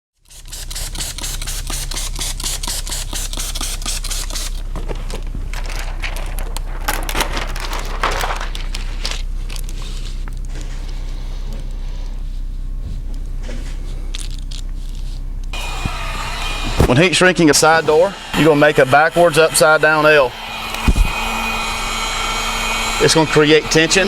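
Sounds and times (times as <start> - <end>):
tint film crackling on glass: 0.2 - 10.6
steady low hum: 0.2 - 24.0
film scraping and crinkling: 0.3 - 11.0.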